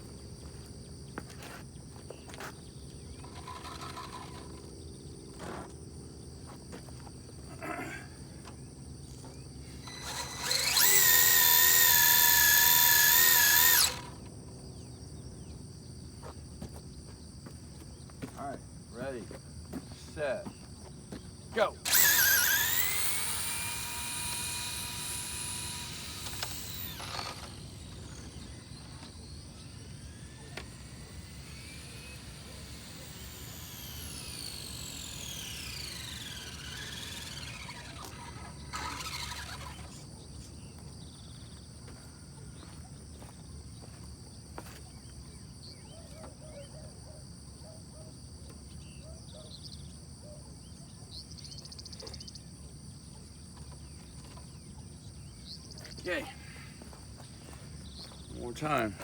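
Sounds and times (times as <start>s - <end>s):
insects chirring: 0.0s - 59.0s
electric motor whining: 2.9s - 5.6s, 8.6s - 14.8s, 21.8s - 40.3s.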